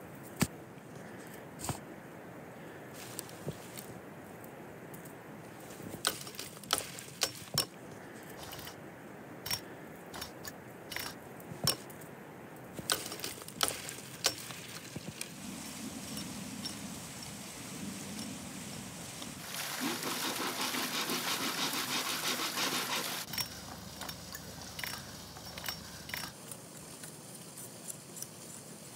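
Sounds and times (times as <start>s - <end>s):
faint steady hum: 0.0s - 20.4s, 21.6s - 28.9s
branches cracking and snapping: 4.9s - 8.1s, 11.6s - 15.4s.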